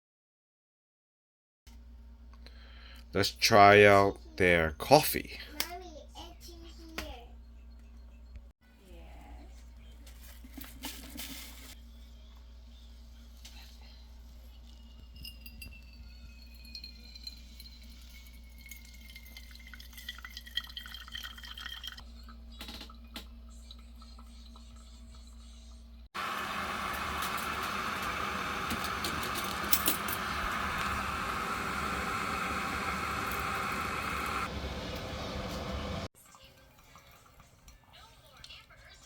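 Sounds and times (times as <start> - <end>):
glass clinks: 14.6 - 20.2
liquid dripping into a cup: 14.7 - 24.9.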